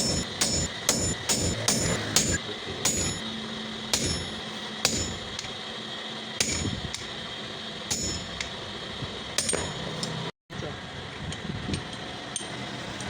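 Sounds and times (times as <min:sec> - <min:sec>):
hammer striking steel: 0:00.0 - 0:03.3, 0:03.9 - 0:05.5, 0:06.4 - 0:07.1, 0:07.9 - 0:08.6, 0:09.4 - 0:10.2.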